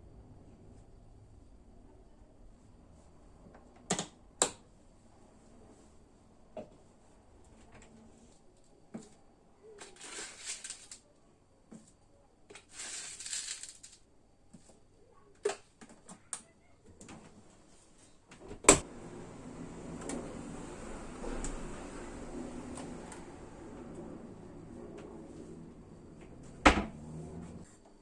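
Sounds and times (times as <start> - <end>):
steady rushing noise: 18.8 - 27.6.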